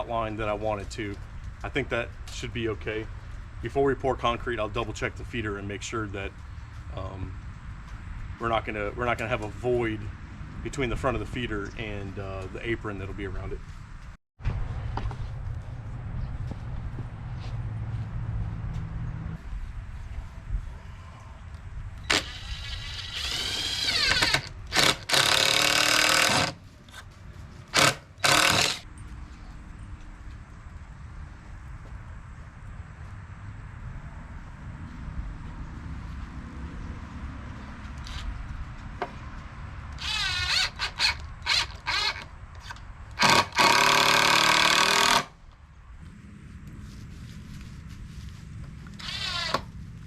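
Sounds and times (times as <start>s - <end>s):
handheld power tool running: 22.1s - 26.6s, 27.7s - 28.8s, 40.0s - 42.2s, 43.2s - 45.3s.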